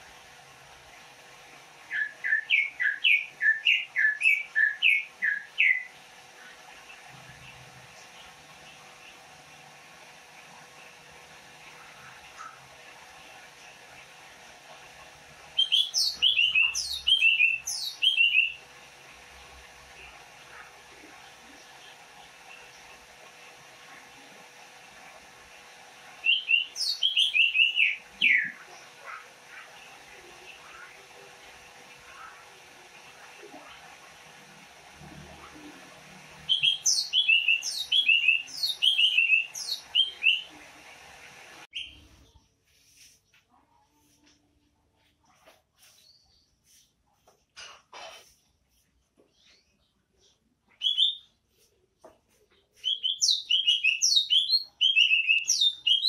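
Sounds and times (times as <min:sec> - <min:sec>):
bird chirping and whistling: 0:01.9 - 0:05.9, 0:15.6 - 0:18.6, 0:26.2 - 0:28.6, 0:36.5 - 0:40.5, 0:50.8 - 0:51.3, 0:52.8 - 0:56.0.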